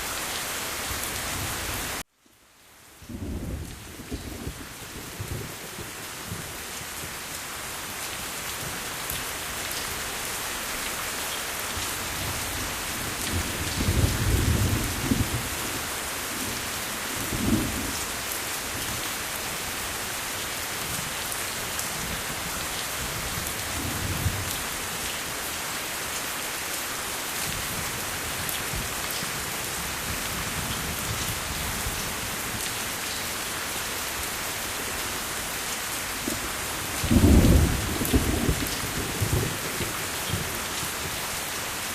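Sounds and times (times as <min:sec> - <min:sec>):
heavy rain: 0:00.0 - 0:41.9
thunder rumbling: 0:37.0 - 0:40.4.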